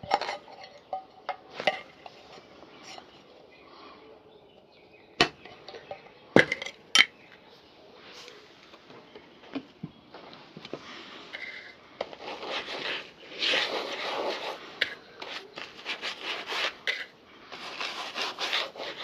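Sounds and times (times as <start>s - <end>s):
clinks and knocks of tools: 0.0s - 3.3s, 5.2s - 7.4s.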